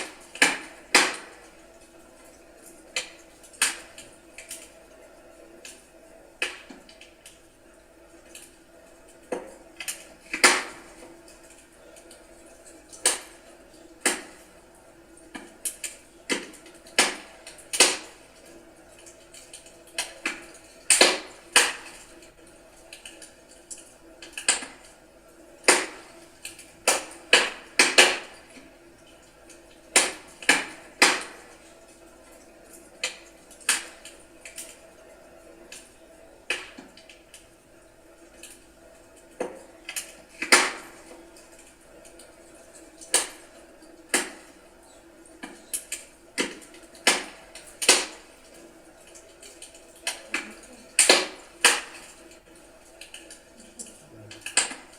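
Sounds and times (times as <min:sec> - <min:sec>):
faint steady background noise: 0:00.0 - 0:54.9
wood fire crackling and popping: 0:00.0 - 0:54.9.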